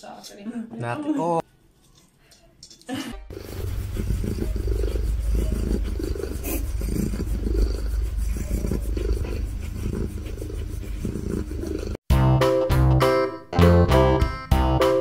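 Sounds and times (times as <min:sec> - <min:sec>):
cat purring: 0:03.3 - 0:12.0
guitar music: 0:12.1 - 0:15.0.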